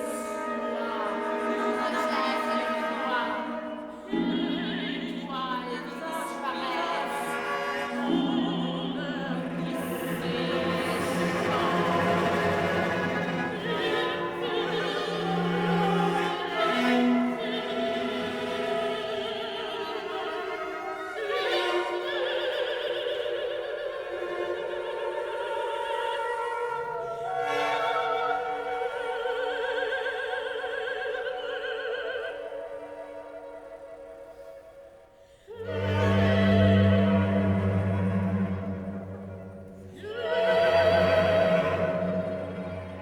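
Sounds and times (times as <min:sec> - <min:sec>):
orchestral accompaniment: 0:00.0 - 0:23.1, 0:35.5 - 0:43.0.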